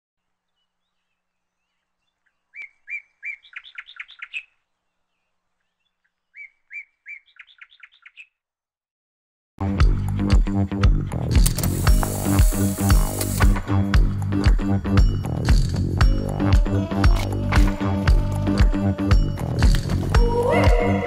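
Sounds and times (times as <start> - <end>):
songbird singing: 0.2 - 8.5.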